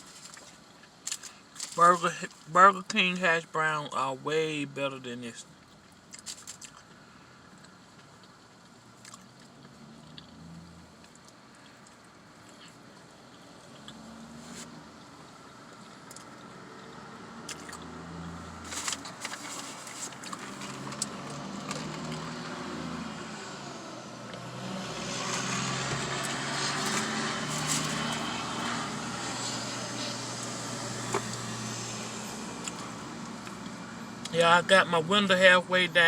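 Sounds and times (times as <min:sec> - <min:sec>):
highway traffic passing: 0:00.6 - 0:36.0
chewing and crunching food: 0:05.6 - 0:10.4, 0:11.0 - 0:14.6, 0:15.7 - 0:16.4, 0:17.4 - 0:17.9, 0:18.6 - 0:22.3, 0:26.2 - 0:28.8, 0:32.5 - 0:34.4.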